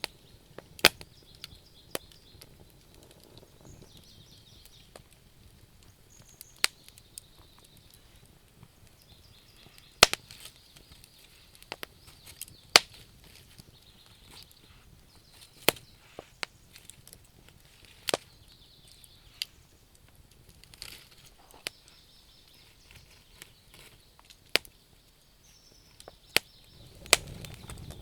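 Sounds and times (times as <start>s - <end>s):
burning logs popping: 0.0s - 28.0s
wood fire crackling: 0.0s - 28.0s
faint high chirping: 21.3s - 28.0s.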